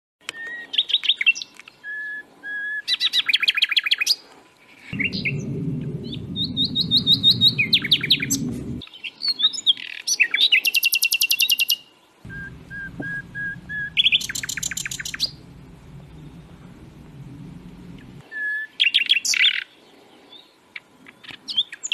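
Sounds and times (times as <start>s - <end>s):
low rumbling noise: 4.9s - 8.8s, 12.2s - 18.2s
whistled bird notes: 5.0s - 8.8s, 12.3s - 18.8s
songbirds trilling: 12.3s - 18.2s.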